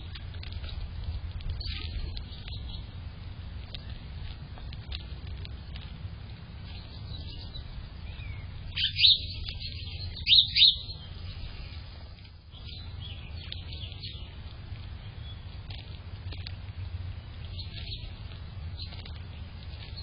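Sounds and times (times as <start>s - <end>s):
faint bird chirps: 6.6s - 14.4s
small bird sharp high calls: 6.7s - 11.8s.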